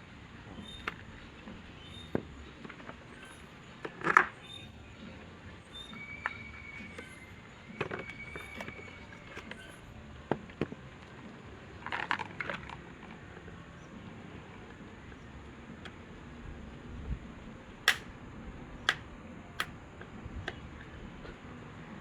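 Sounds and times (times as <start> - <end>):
small parts clicking and scraping: 17.9 - 18.1.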